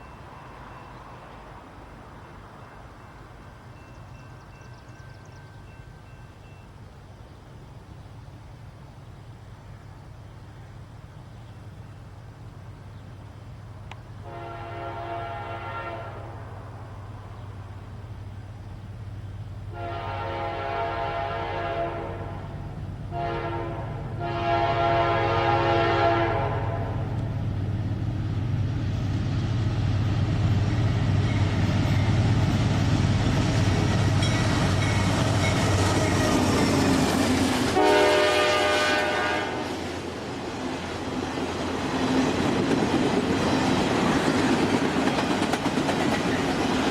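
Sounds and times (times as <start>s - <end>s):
train horn: 14.2s - 16.8s, 19.7s - 27.4s, 33.8s - 40.0s.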